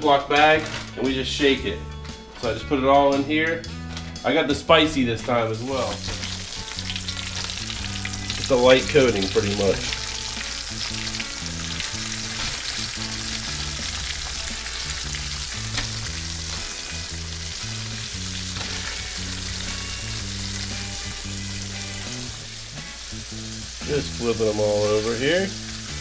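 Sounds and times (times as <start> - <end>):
background music bass line: 0.0 - 26.0
oil sizzling in a skillet: 5.4 - 26.0.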